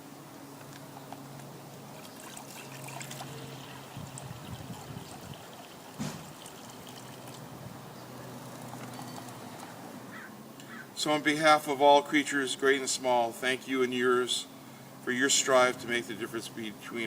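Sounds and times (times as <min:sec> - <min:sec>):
water pouring into container: 0:02.0 - 0:07.5
short thump: 0:06.0 - 0:06.3.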